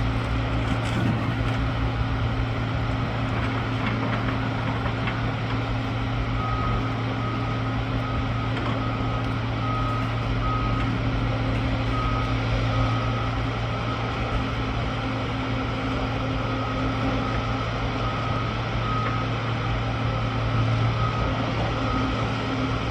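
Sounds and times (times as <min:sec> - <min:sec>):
diesel engine hum: 0:00.0 - 0:22.9
back-up alarm beeping: 0:02.8 - 0:11.2.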